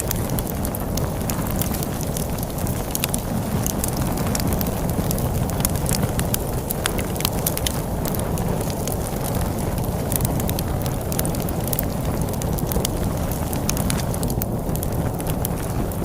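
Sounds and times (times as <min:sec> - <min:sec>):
log fire crackling: 0:00.0 - 0:16.0
storm wind rumble: 0:00.0 - 0:16.0.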